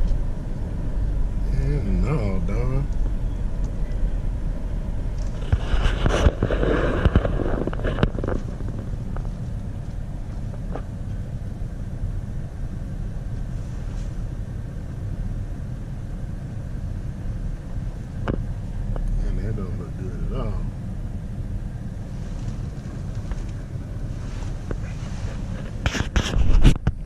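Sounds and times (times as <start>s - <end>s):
motor rumbling: 0.0s - 27.0s
wind on microphone: 2.9s - 11.0s, 20.9s - 27.0s.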